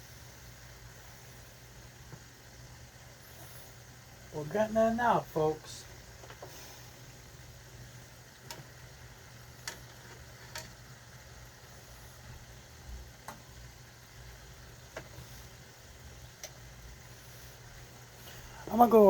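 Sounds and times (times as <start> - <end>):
low hum of pots cooking: 0.0 - 19.0
sharp ticks or pops: 16.4 - 16.6.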